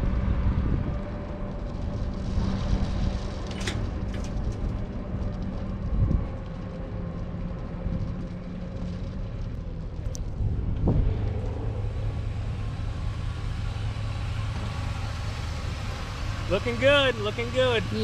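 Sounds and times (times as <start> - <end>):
truck engine idling: 9.6 - 18.0.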